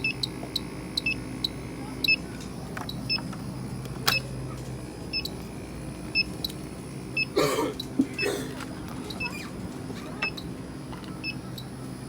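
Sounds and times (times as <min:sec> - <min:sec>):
leak detector high beeps: 0:00.0 - 0:02.2, 0:05.1 - 0:05.4, 0:06.1 - 0:06.6, 0:07.2 - 0:07.9, 0:10.2 - 0:10.5, 0:11.2 - 0:11.7
machinery hum: 0:00.0 - 0:12.0.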